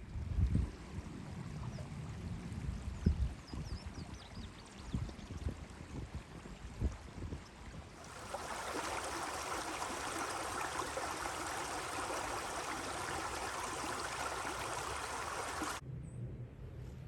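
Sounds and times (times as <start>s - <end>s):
stream flowing: 8.0s - 15.8s.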